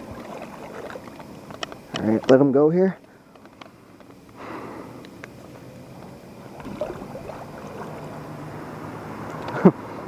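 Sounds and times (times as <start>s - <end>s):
river water rushing: 6.4s - 9.4s.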